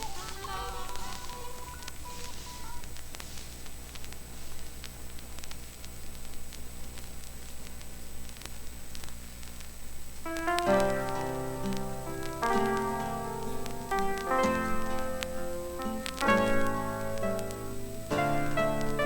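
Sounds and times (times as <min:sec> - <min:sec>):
low steady hum: 0:00.0 - 0:19.0
vinyl record surface clicks: 0:01.0 - 0:19.0
piano intro: 0:10.2 - 0:19.0.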